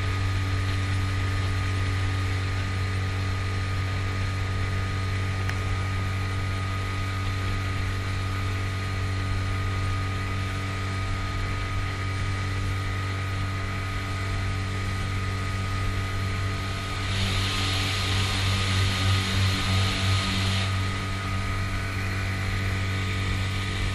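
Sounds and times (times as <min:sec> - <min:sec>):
outboard motor humming: 0:00.0 - 0:23.9
hiss: 0:16.6 - 0:20.8.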